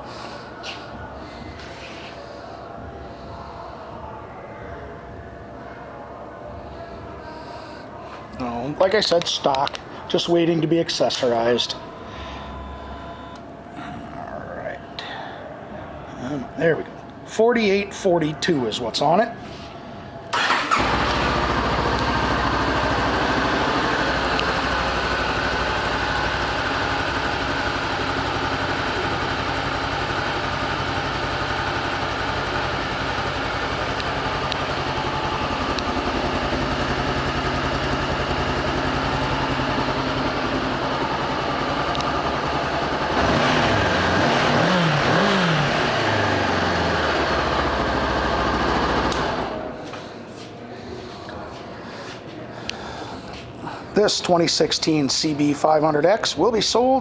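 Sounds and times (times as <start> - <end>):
motorcycle engine idling and revving: 20.4 - 49.8.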